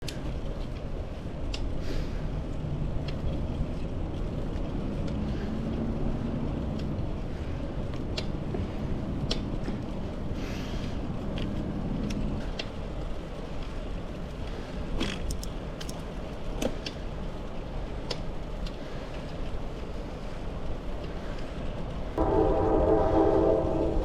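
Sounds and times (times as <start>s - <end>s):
bicycle tyres rumbling: 0.0s - 24.0s
clicks and rattles: 15.0s - 16.2s
hissing swells: 22.2s - 24.0s.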